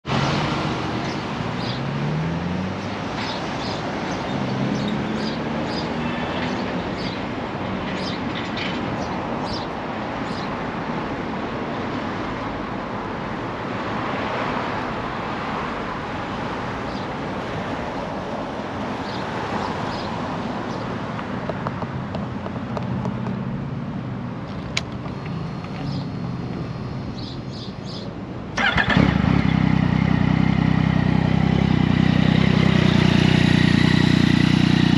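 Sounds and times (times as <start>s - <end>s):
street traffic passing: 0.0s - 34.9s
motorcycle engine starting and idling: 28.6s - 34.9s.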